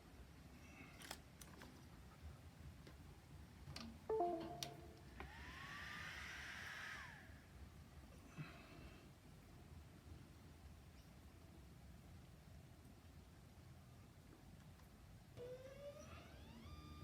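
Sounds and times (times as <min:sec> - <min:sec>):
motor whine with grinding hiss: 0:05.2 - 0:07.4, 0:15.4 - 0:17.0.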